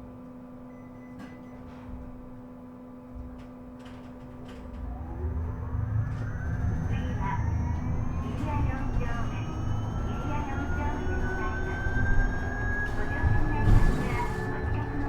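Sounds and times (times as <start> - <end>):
electric motor whine rising: 4.7 - 12.9.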